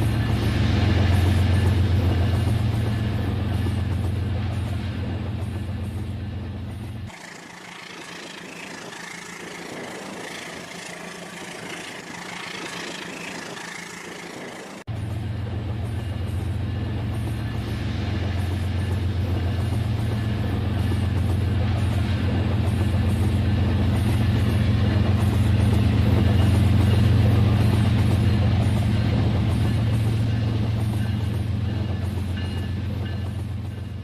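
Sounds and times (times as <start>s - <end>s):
toy train motor hum: 7.1s - 14.8s.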